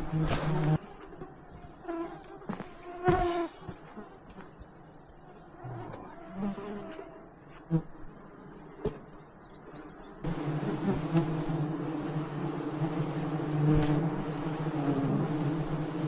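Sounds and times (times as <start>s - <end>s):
flying insect buzzing: 0.0s - 4.0s, 10.2s - 16.0s.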